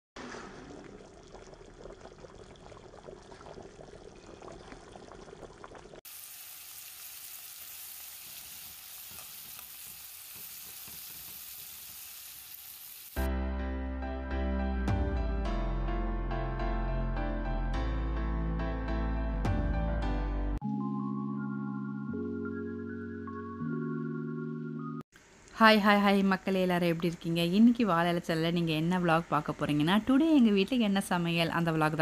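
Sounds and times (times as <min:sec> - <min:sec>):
curry bubbling and crackling: 0:00.2 - 0:13.3
vegetables sizzling in oil: 0:06.0 - 0:13.3
background music: 0:13.2 - 0:25.0.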